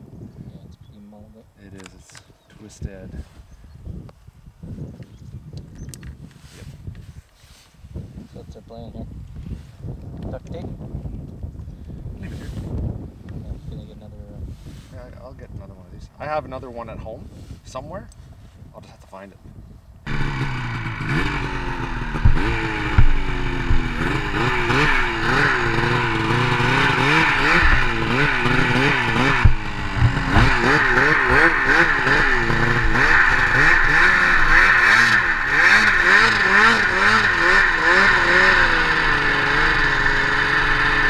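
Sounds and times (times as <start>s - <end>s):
snowmobile engine revving: 20.1s - 41.0s
knocks and clatters: 21.0s - 36.2s.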